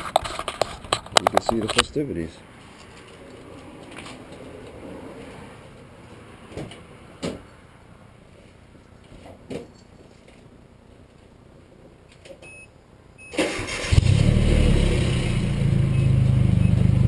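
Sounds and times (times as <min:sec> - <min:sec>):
short beep: 0:12.5 - 0:13.4
car starter cranking: 0:13.3 - 0:14.6.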